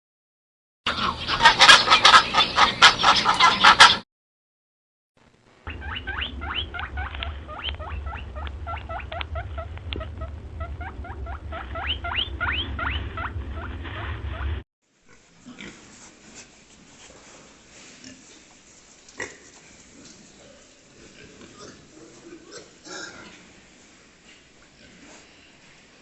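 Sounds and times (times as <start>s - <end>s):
steady low hum: 5.2s - 14.6s
short high rising squeaks: 5.7s - 14.6s.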